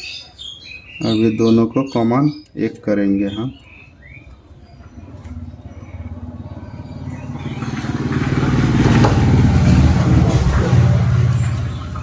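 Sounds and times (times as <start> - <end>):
vehicle engine passing by: 4.7 - 12.0.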